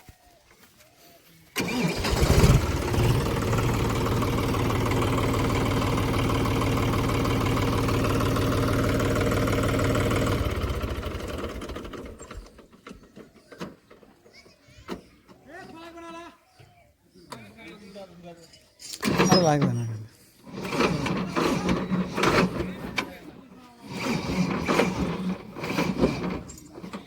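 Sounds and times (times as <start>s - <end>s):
tractor diesel engine idling: 1.6s - 12.4s.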